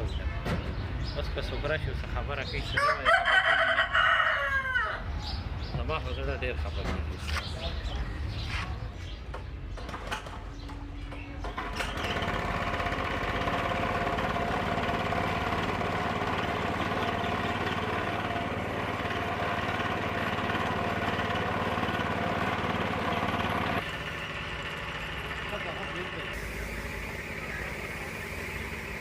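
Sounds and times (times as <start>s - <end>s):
engine-driven machine running: 9.8s - 29.0s.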